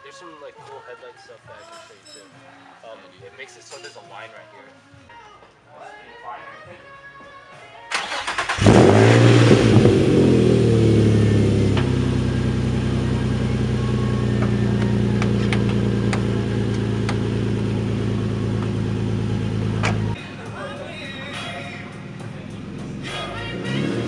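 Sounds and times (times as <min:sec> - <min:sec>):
starter motor cranking: 0:07.9 - 0:09.8
car engine revving and idling: 0:08.0 - 0:20.2, 0:21.9 - 0:24.0.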